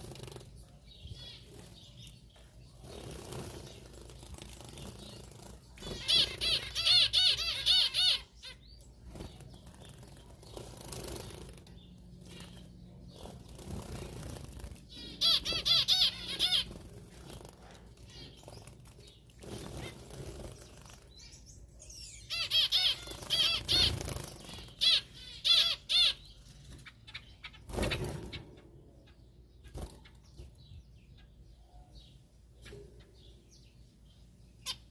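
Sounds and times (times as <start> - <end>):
birds warbling chirps: 0.0 - 34.9
bird wings fluttering: 13.2 - 14.9.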